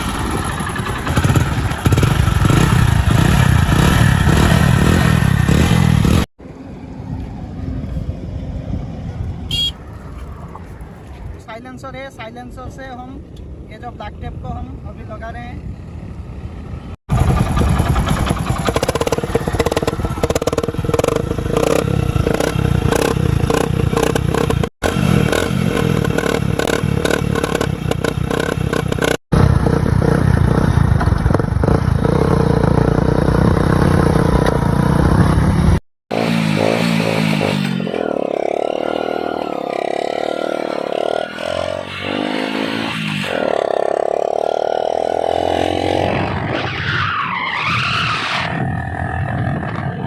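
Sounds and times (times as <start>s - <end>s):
motorcycle engine running: 0.0s - 6.3s, 15.6s - 37.6s.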